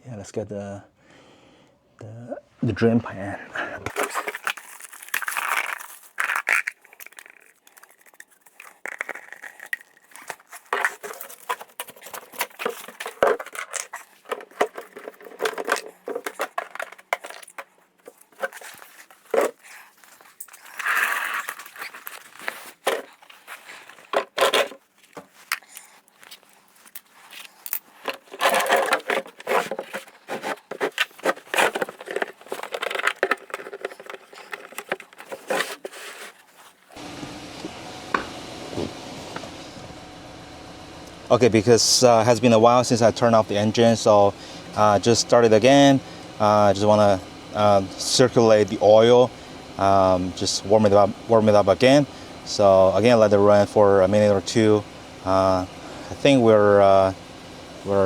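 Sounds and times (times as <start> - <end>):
objects scraping and clattering: 3.9 - 37.0.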